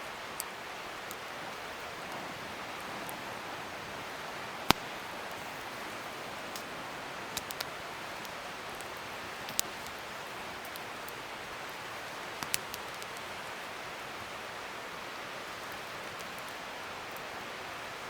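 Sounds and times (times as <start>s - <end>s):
fire crackles and pops: 0.0s - 18.0s
wood fire hissing: 0.0s - 18.0s.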